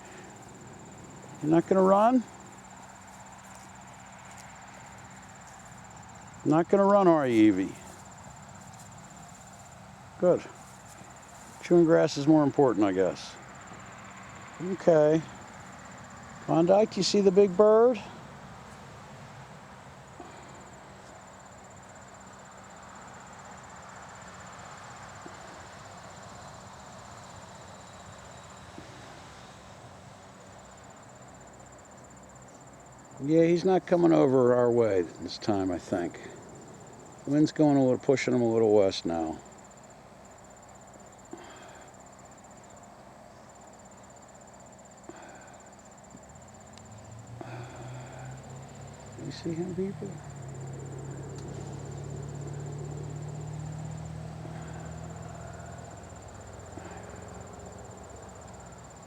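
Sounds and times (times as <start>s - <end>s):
faint outdoor hiss: 0.0s - 59.0s
insects trilling: 0.0s - 59.0s.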